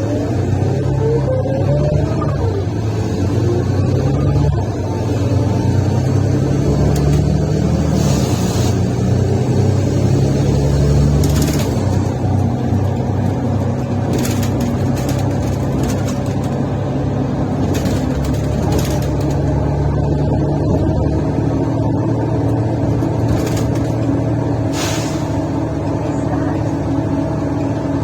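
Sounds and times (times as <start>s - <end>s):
bus engine drone: 0.0s - 28.0s
short hisses: 24.7s - 25.5s.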